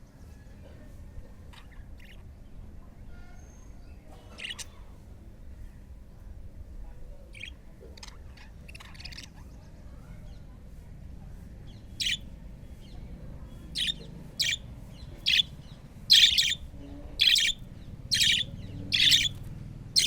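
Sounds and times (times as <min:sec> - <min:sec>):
low steady background noise: 0:00.0 - 0:20.0
budgerigars chirping: 0:04.3 - 0:04.8, 0:07.4 - 0:09.3, 0:11.9 - 0:12.2, 0:13.7 - 0:19.4.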